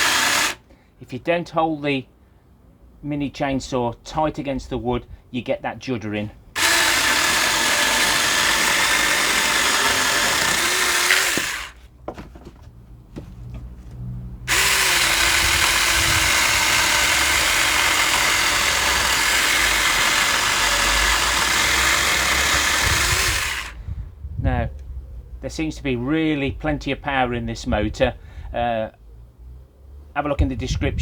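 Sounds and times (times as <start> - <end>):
mini chainsaw cutting wood: 0.0 - 0.6, 6.6 - 11.8, 14.5 - 23.8.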